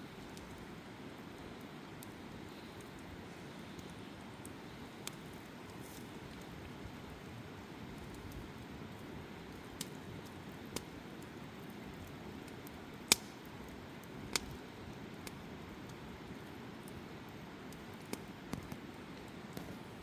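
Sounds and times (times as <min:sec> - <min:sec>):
flames rustling: 0:00.0 - 0:20.0
wood crackling pops: 0:12.0 - 0:16.0, 0:17.7 - 0:19.9.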